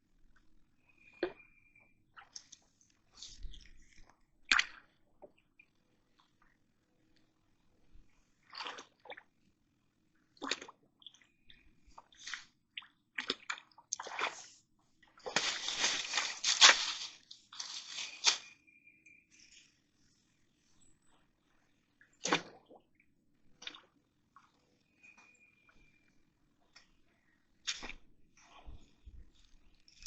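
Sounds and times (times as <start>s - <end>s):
water sloshing and splashing: 8.4s - 9.3s, 10.4s - 18.3s.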